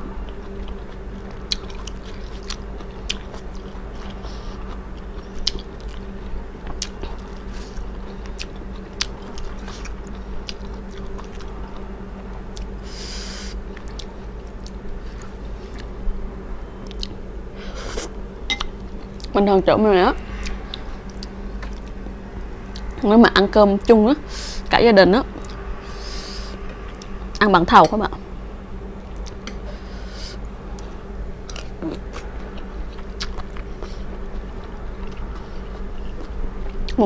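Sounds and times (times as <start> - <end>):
steady low hum: 0.0 - 37.0
person chewing food: 0.2 - 12.8, 13.7 - 15.9, 16.8 - 17.2, 20.2 - 22.0, 29.1 - 29.8, 30.7 - 37.0.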